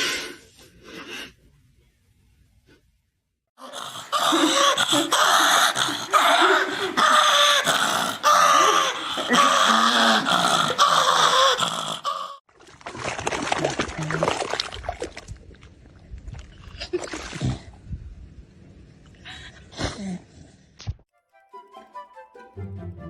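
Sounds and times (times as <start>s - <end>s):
dog growling and grunting: 3.6s - 12.4s.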